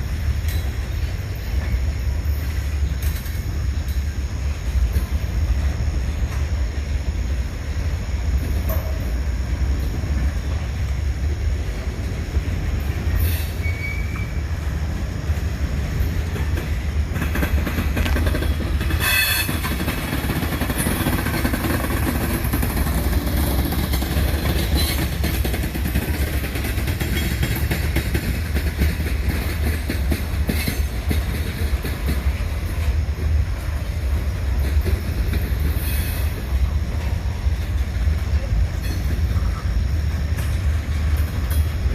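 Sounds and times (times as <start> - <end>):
train wheels squealing: 0.0 - 4.2, 12.8 - 33.0, 34.4 - 41.9
freight train rumbling past: 0.0 - 41.9
wheels clacking over rail joints: 0.0 - 41.9.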